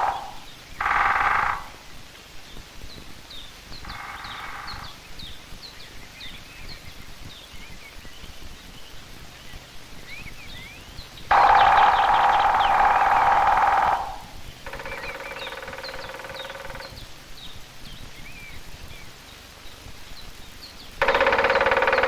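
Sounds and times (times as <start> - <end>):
woodpecker drumming on branch: 0.0 - 2.0, 3.7 - 5.3, 11.3 - 17.1, 21.0 - 22.0
songbirds chirping faintly: 0.0 - 22.0.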